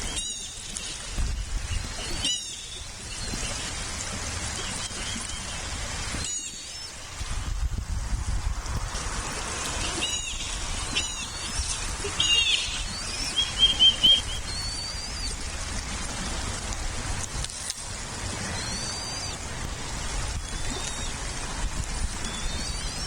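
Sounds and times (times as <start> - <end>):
bird chirping: 9.9 - 15.3.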